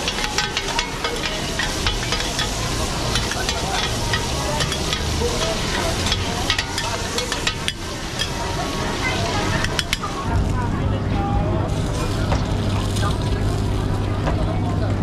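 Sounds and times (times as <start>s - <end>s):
food sizzling with crackling pops: 0.0s - 10.6s, 11.7s - 14.4s.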